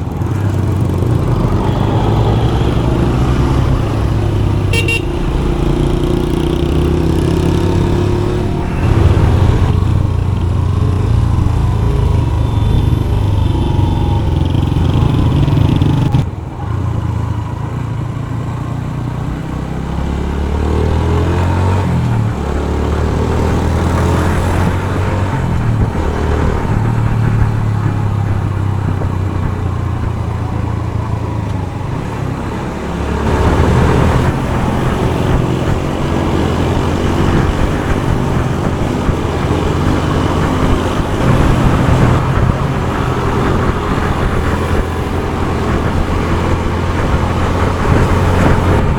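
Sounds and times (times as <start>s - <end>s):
motorcycle engine running: 0.0s - 48.9s
road and wind noise: 0.0s - 48.9s.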